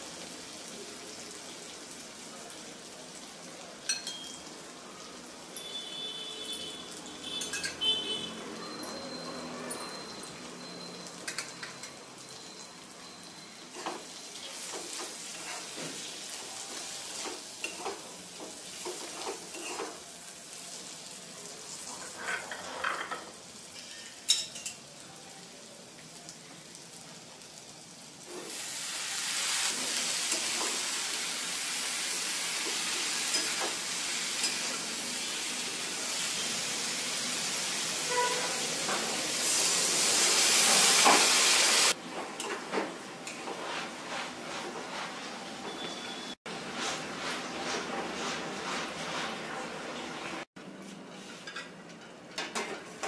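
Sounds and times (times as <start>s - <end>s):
potatoes frying in a pan: 0.0s - 5.9s, 10.4s - 45.0s
loud sizzle in hot oil: 0.0s - 50.5s
spatula scraping a pan: 14.6s - 16.1s, 18.6s - 20.0s, 21.8s - 23.2s, 43.3s - 49.6s.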